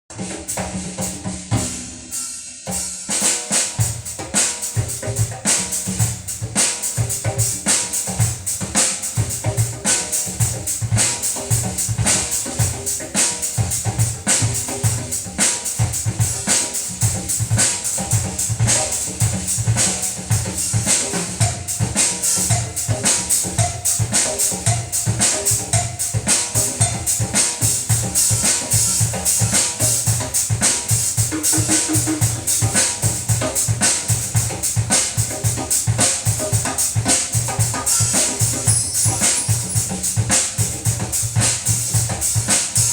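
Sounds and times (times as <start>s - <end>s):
drum-driven music with heavy bass: 0.1s - 42.9s.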